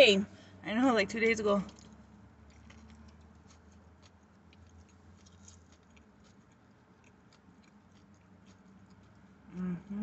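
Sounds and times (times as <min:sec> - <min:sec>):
low steady hum: 0:00.0 - 0:10.0
person chewing food: 0:01.7 - 0:10.0.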